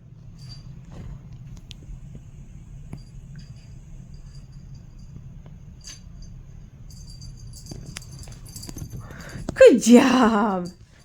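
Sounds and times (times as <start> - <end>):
cat toy clicking and tinkling: 5.8 - 9.9.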